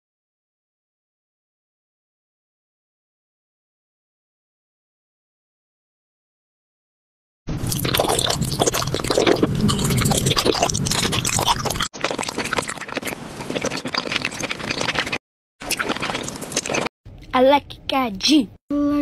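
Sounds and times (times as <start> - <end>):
crunching hard candy: 7.7 - 16.9.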